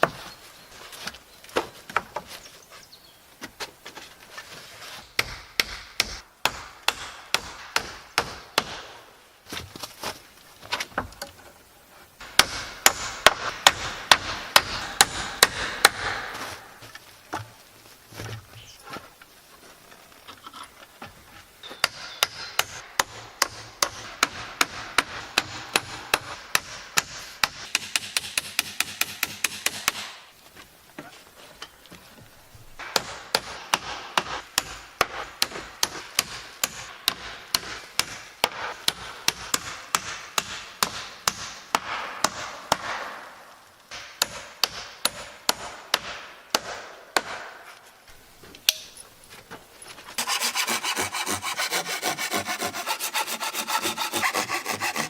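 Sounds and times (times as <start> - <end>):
hand tool working wood: 49.9 - 55.0.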